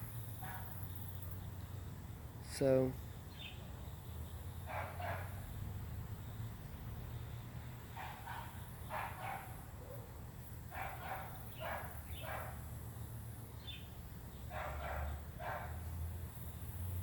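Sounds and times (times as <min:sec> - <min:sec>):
dog barking: 0:00.4 - 0:00.8, 0:04.7 - 0:05.4, 0:08.0 - 0:10.1, 0:10.7 - 0:12.6, 0:14.5 - 0:15.9.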